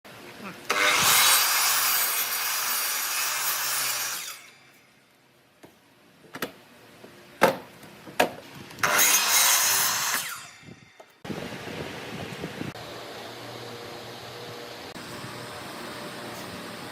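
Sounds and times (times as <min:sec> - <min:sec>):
power saw cutting wood: 0:00.7 - 0:04.8, 0:08.8 - 0:10.8.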